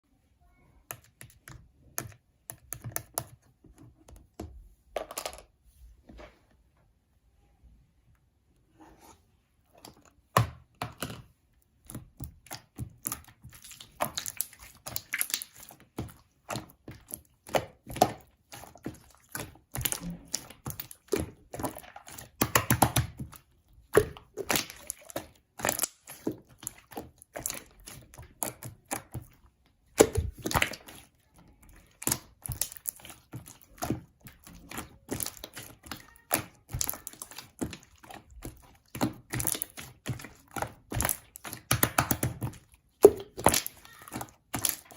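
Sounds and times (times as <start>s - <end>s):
slime squished by hand: 11.8s - 44.9s.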